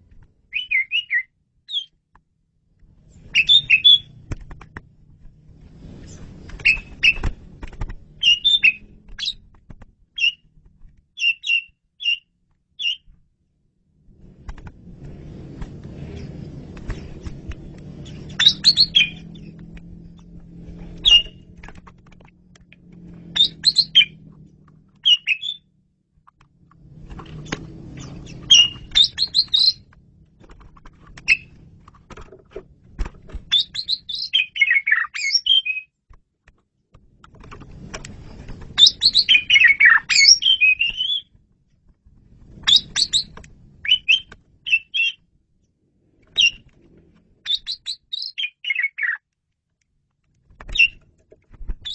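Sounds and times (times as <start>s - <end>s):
starling singing: 3.4s - 4.1s, 8.2s - 9.4s, 18.0s - 19.5s, 21.0s - 21.4s, 23.4s - 24.2s, 25.0s - 25.7s, 28.0s - 29.8s, 33.5s - 35.9s, 38.8s - 41.3s, 42.7s - 45.2s, 47.5s - 49.2s.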